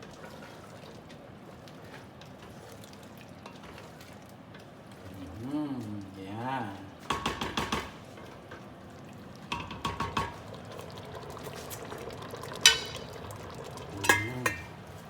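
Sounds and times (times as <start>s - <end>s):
sauce simmering: 0.0s - 15.0s
utensil scraping cooking pot: 11.3s - 15.0s.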